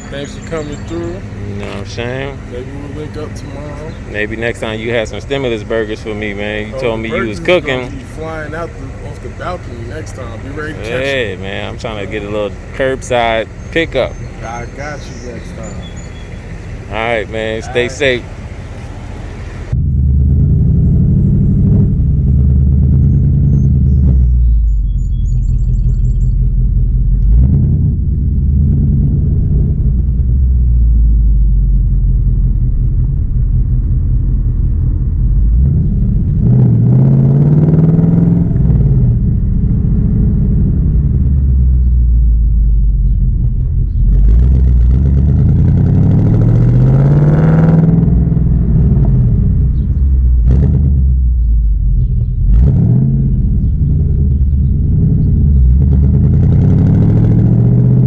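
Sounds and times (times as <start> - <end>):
car engine rumbling: 0.0 - 58.0.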